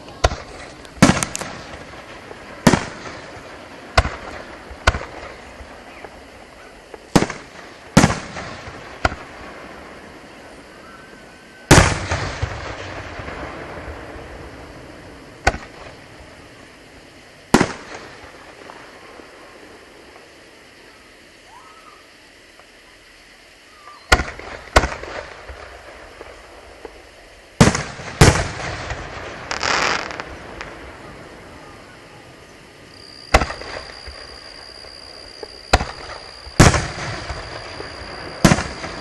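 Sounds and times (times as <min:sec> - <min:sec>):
firework shells bursting: 0:27.6 - 0:31.0, 0:33.3 - 0:39.0.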